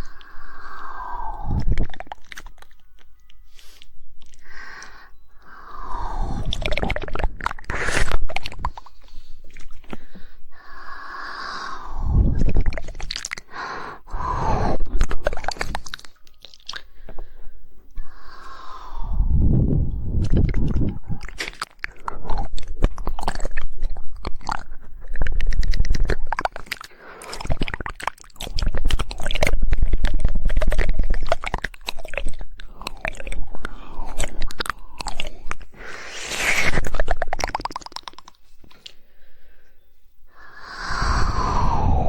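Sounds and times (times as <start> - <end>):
wet tongue clicks and smacking: 0.0 - 10.0, 11.9 - 13.6, 14.6 - 17.3, 20.1 - 39.0.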